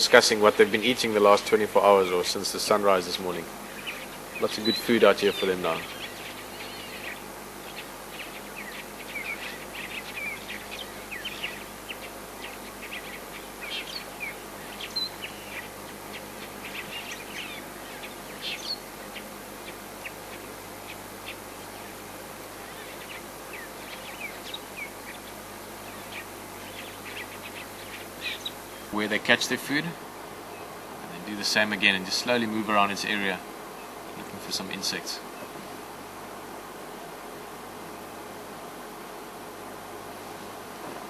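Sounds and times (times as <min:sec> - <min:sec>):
starlings chirping and whistling: 0:01.8 - 0:29.9.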